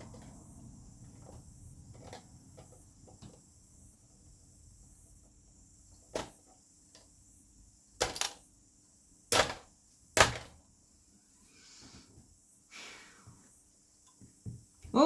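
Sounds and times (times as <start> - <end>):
plastic knocks and snaps: 6.1 - 6.5, 9.3 - 10.6.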